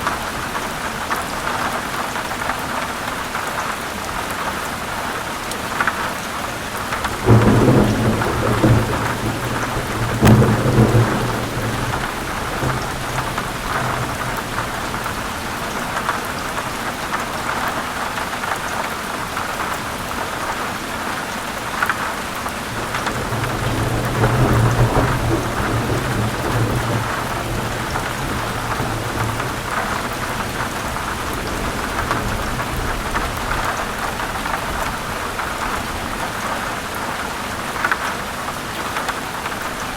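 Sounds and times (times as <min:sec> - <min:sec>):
heavy rain on leaves: 0:00.0 - 0:39.9
rolling thunder: 0:07.0 - 0:16.2, 0:22.7 - 0:35.2.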